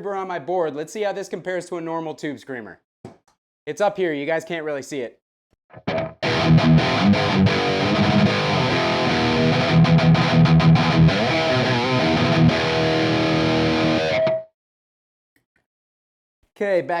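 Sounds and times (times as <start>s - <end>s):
distorted electric guitar riff: 5.7s - 14.5s.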